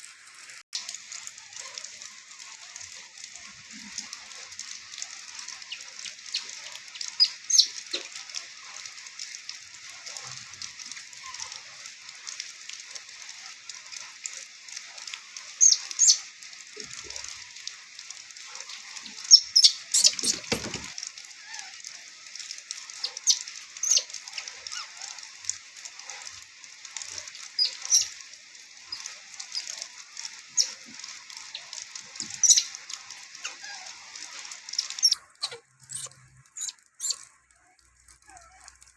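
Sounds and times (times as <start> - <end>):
rain hissing: 0.0 - 38.9
sharp high ticks and clicks: 22.3 - 38.9.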